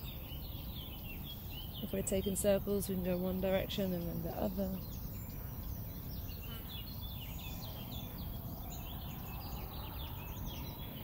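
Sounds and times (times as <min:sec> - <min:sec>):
birds singing chirps and trills: 0:00.0 - 0:11.0.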